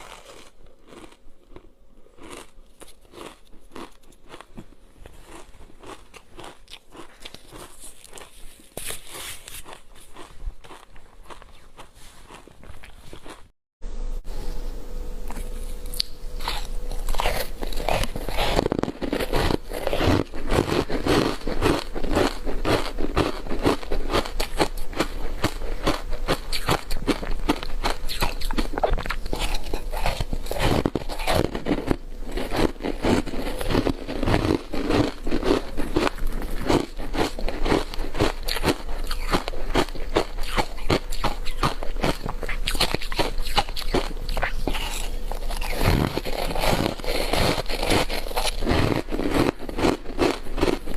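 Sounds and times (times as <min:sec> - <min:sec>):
ice being crunched: 0:16.4 - 0:50.9.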